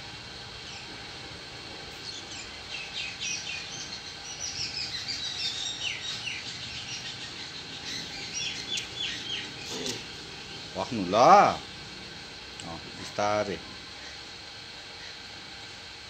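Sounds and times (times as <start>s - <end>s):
birds chirping: 2.0s - 11.6s.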